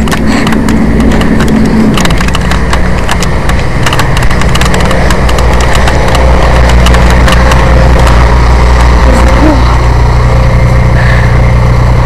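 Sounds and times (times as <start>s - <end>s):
sharp clicks and crackles: 0.0s - 9.8s
vehicle engine idling: 0.0s - 12.0s.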